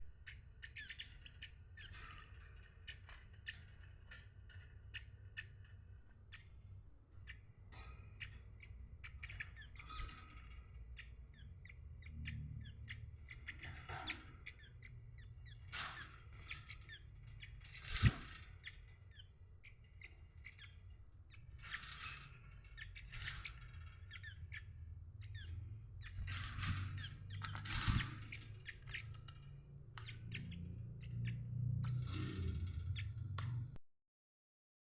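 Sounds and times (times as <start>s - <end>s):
small birds chirping: 0.0s - 33.8s
low steady rumble: 5.7s - 20.3s.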